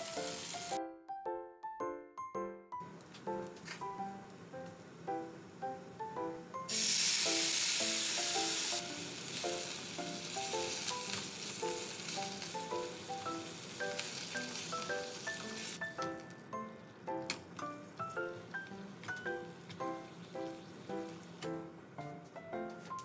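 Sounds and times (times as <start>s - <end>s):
food sizzling in oil: 0.0s - 0.8s, 6.6s - 16.0s.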